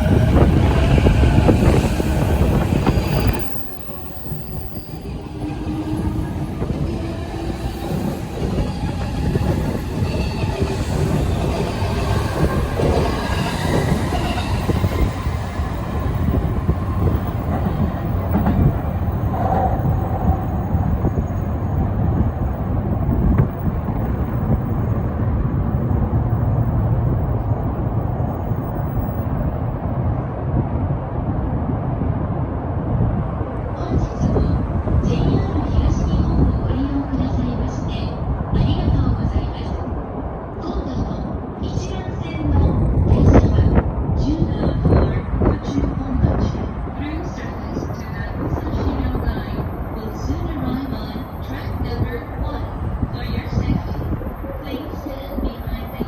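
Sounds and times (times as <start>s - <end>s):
train wheels squealing on rails: 0.0s - 22.6s
train rumble: 0.0s - 56.0s
wind buffeting microphone: 0.0s - 56.0s.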